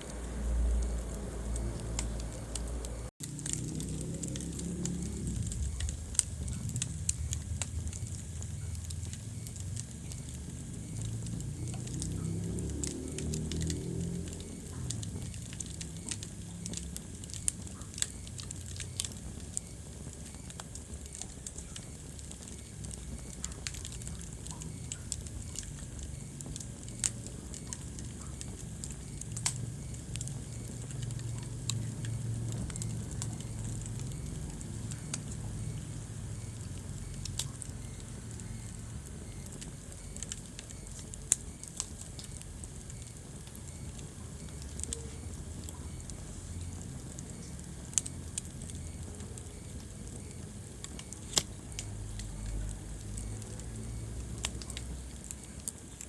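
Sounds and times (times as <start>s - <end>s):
low steady fire rumble: 0.0s - 56.0s
wood fire crackling and popping: 0.0s - 56.0s.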